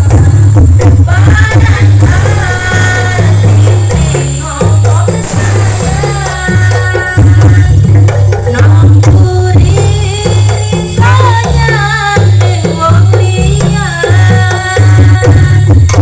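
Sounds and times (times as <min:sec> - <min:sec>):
wavering melody: 0:00.0 - 0:08.4
booming bass pulse: 0:00.0 - 0:16.0
drums: 0:00.0 - 0:16.0.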